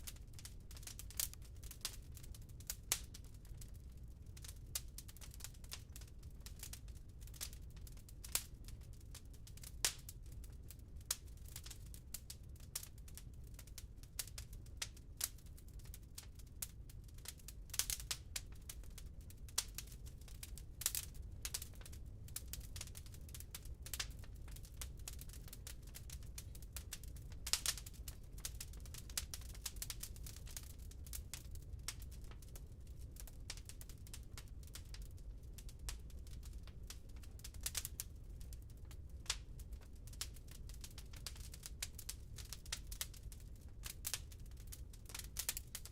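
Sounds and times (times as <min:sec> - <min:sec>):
wood fire crackling and popping: 0:00.0 - 0:45.9.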